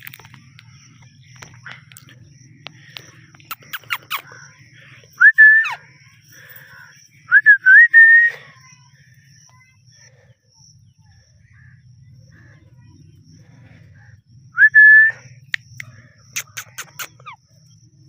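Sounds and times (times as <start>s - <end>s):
parakeet chirping: 3.4s - 4.3s.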